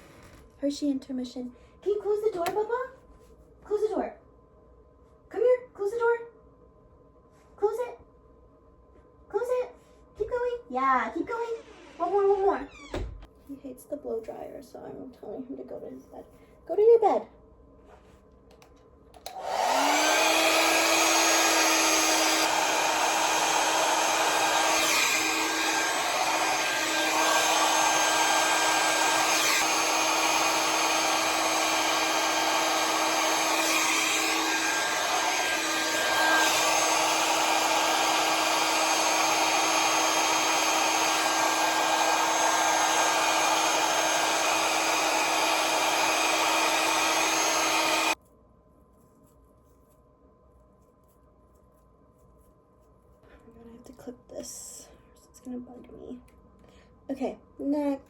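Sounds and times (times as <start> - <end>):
hair dryer running: 19.2 - 48.2.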